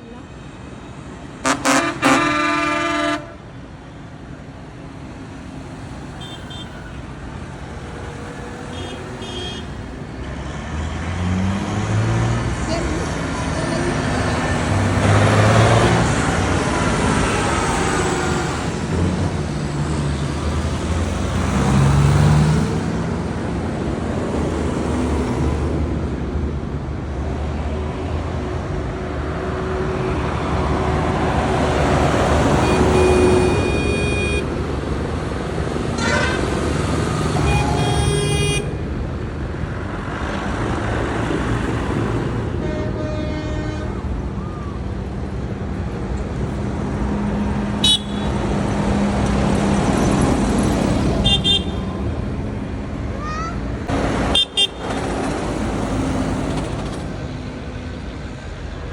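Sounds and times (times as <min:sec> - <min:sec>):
truck engines driving past: 0:00.0 - 0:58.9
horn blasts: 0:01.4 - 0:03.4, 0:32.6 - 0:34.5, 0:37.3 - 0:38.8, 0:42.6 - 0:44.0, 0:47.8 - 0:48.4.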